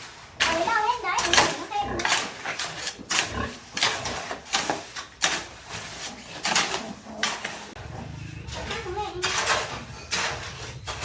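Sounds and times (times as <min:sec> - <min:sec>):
pigs grunting: 0:01.2 - 0:04.5, 0:06.0 - 0:11.0.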